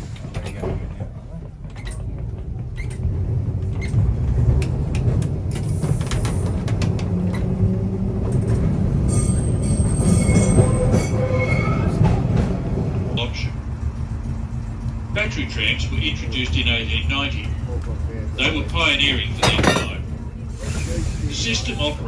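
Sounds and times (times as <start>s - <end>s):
tram clicks and knocks: 0.0s - 9.1s, 10.2s - 20.5s
tram rumbling on rails: 0.0s - 22.0s
high wheel squeal: 9.1s - 12.0s.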